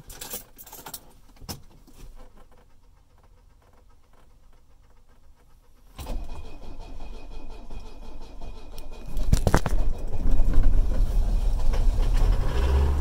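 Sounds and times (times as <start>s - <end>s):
diesel engine starting: 5.9s - 13.0s.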